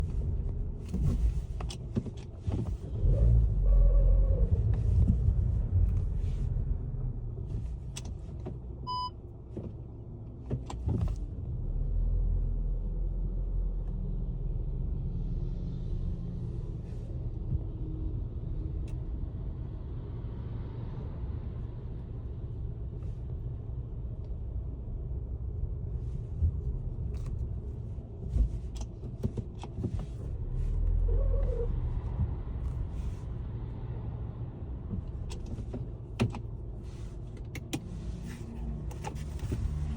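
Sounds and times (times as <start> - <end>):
car driving rumble: 0.0 - 39.9
short beep: 8.9 - 9.1.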